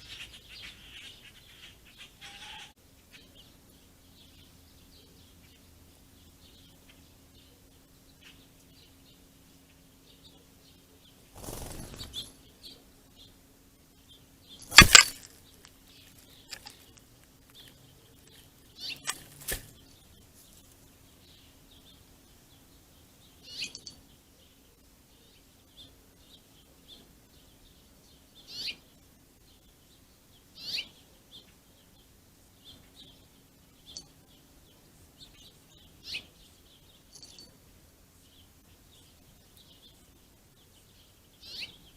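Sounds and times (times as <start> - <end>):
small birds chirping: 0.0 - 41.9
wings flapping: 11.3 - 12.3, 14.7 - 15.3.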